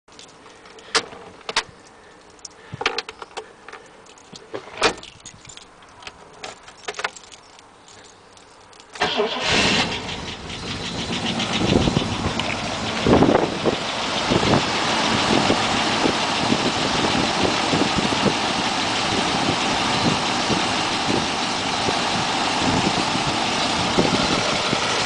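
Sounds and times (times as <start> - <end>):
starter motor cranking: 9.0 - 13.4
car engine running: 9.0 - 25.0.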